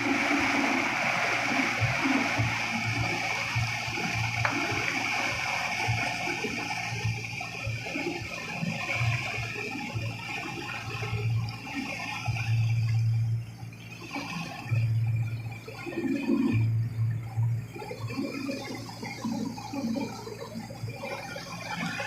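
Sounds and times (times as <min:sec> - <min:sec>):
water rushing: 0:00.0 - 0:13.1.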